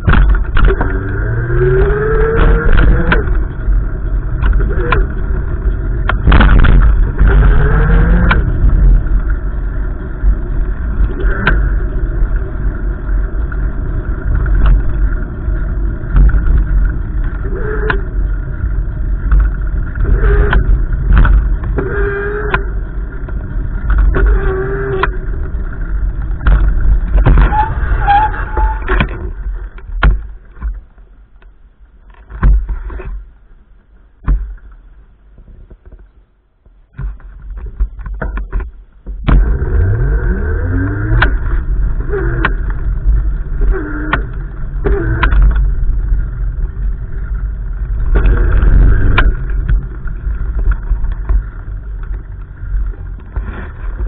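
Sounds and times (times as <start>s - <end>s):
knocks and clicks: 0.0s - 9.5s, 13.3s - 18.5s, 19.2s - 33.2s, 42.3s - 46.0s, 47.8s - 54.0s
wind buffeting microphone: 0.0s - 30.8s.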